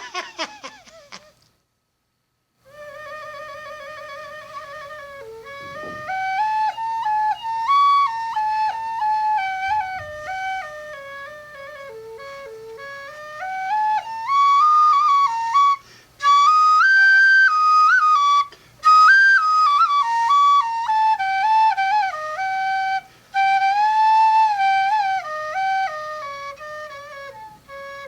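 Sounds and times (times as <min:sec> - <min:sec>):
solo flute melody: 0:02.6 - 0:28.0.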